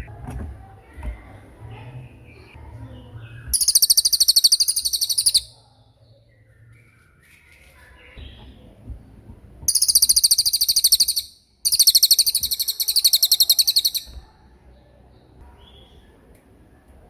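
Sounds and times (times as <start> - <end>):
songbird rattling trills: 3.5 - 5.5, 9.7 - 14.2.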